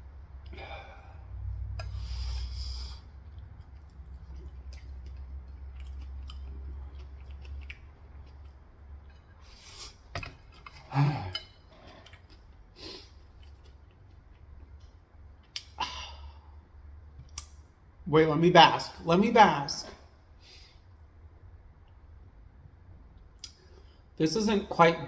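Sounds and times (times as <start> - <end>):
chewing clicks and smacks: 3.2 - 9.5, 10.2 - 15.8, 17.2 - 17.6.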